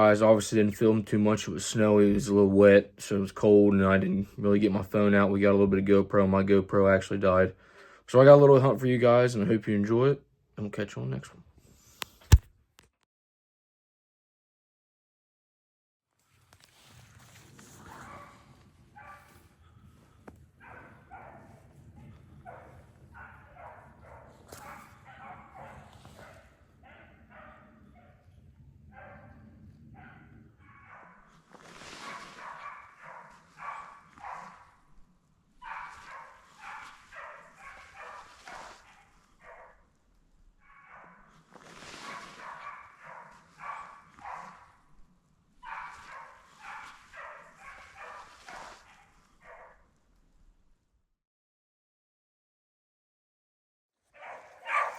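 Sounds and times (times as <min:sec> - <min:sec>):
dogs baying: 0:19.0 - 0:31.4, 0:32.0 - 0:34.9, 0:35.6 - 0:39.8, 0:42.1 - 0:44.8, 0:45.6 - 0:49.8, 0:54.2 - 0:54.9.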